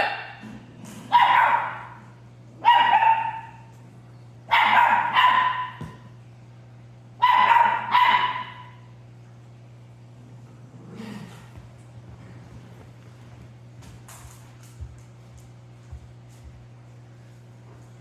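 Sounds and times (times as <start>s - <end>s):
puppy barking: 0.0s - 0.4s, 1.1s - 2.0s, 2.6s - 3.7s, 4.5s - 6.0s, 7.2s - 8.9s.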